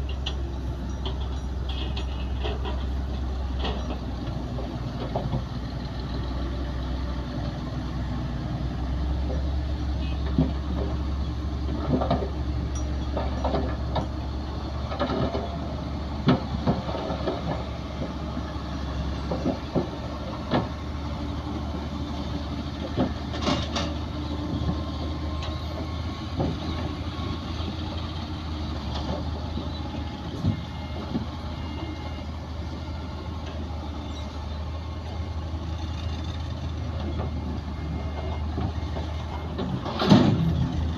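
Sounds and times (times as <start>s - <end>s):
metallic clanks and knocks: 0.0s - 5.5s, 11.6s - 15.6s, 22.8s - 26.9s, 38.1s - 40.7s
heavy machinery engine rumble: 0.0s - 40.9s.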